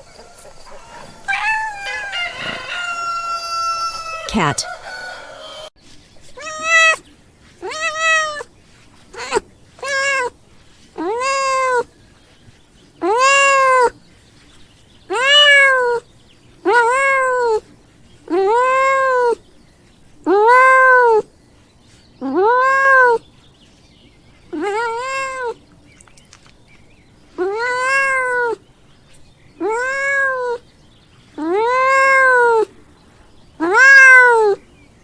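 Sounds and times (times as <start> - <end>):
cat meowing: 1.2 - 4.6, 6.4 - 7.0, 7.6 - 8.5, 9.1 - 10.3, 11.0 - 11.9, 13.0 - 13.9, 15.1 - 16.0, 16.7 - 17.6, 22.3 - 23.2, 24.6 - 25.6, 27.4 - 28.6, 29.6 - 30.6, 31.4 - 32.7, 33.6 - 34.6.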